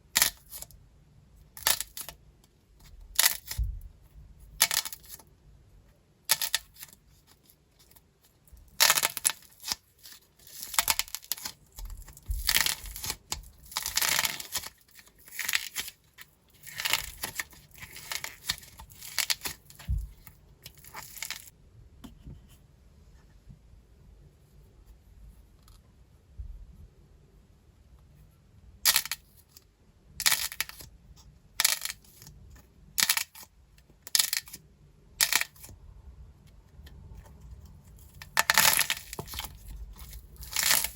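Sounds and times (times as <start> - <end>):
dried clay crust crumbling by hand: 8.7 - 21.5.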